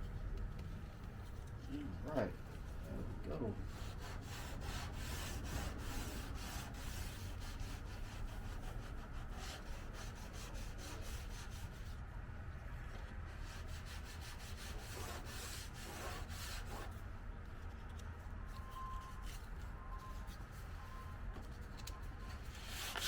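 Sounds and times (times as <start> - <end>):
sandpaper rubbing on car panel: 3.5 - 12.0, 13.3 - 17.0, 22.4 - 23.0.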